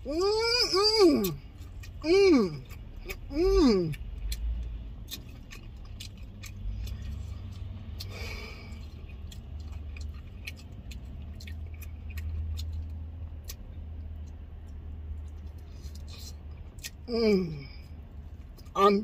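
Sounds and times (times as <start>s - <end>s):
chewing and lip-smacking: 0.6s - 18.9s.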